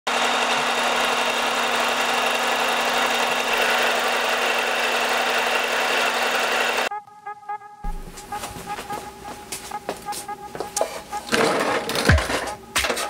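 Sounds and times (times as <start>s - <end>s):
milling machine spindle hum: 0.1s - 6.9s.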